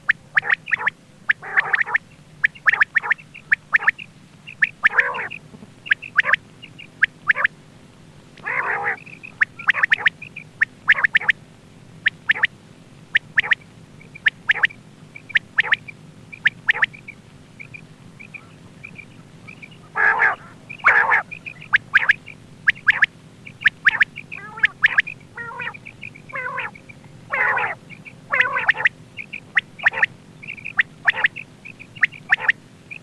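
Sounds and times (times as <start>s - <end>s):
faint high chirps: 0.0s - 7.6s, 8.4s - 11.4s, 12.0s - 33.0s
harsh rasping calls: 0.0s - 7.6s, 8.4s - 11.4s, 12.0s - 33.0s
quail call notes: 0.0s - 7.6s, 8.2s - 33.0s
steady low hum: 0.0s - 33.0s.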